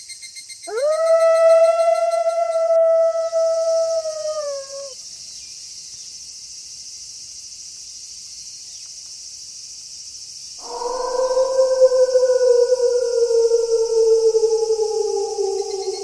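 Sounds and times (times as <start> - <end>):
crickets chirping: 0.2 - 16.0
wolf howling: 0.7 - 4.9, 10.6 - 16.0.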